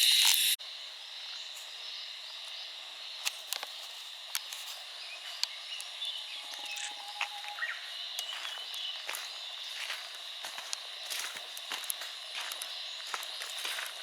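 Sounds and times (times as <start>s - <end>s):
steady high hiss: 0.0s - 13.8s
bird-like chirp: 4.9s - 9.5s.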